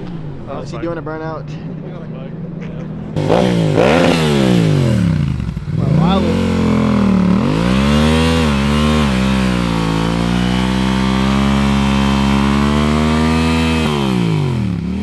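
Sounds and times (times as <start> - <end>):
car engine revving hard: 3.2 - 15.0.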